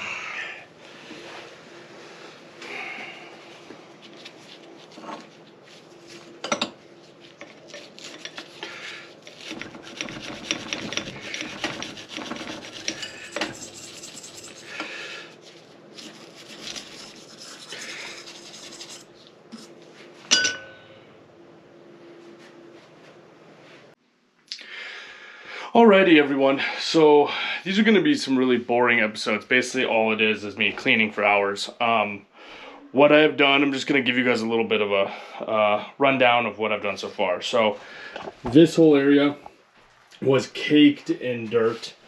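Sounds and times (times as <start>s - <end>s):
hand scrubbing metal parts: 4.0s - 19.8s.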